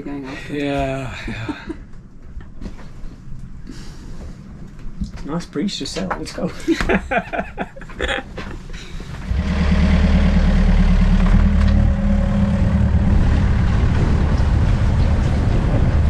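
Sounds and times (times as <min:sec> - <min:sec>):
boat engine starting and idling: 0:09.0 - 0:16.0.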